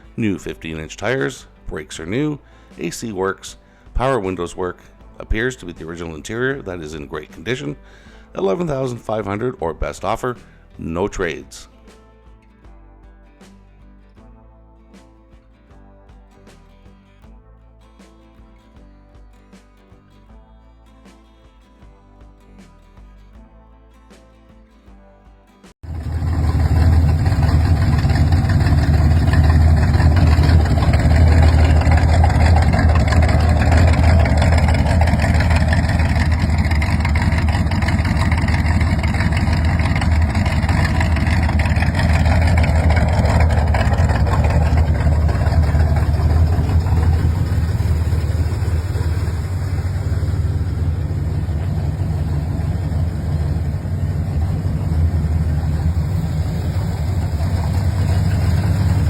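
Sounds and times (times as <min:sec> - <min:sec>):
car engine idling with deep rumble: 0:25.8 - 0:59.0.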